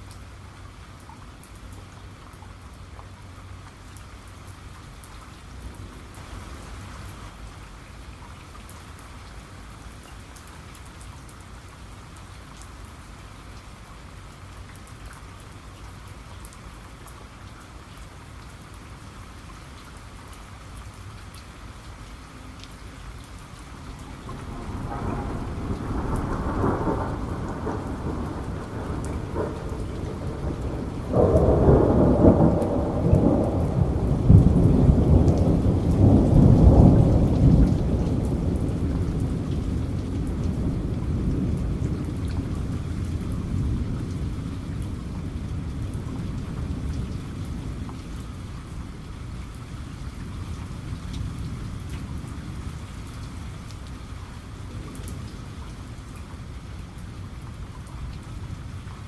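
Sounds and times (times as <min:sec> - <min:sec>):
steady rain falling: 0:00.0 - 0:59.0
thunder rumbling: 0:23.7 - 0:49.0.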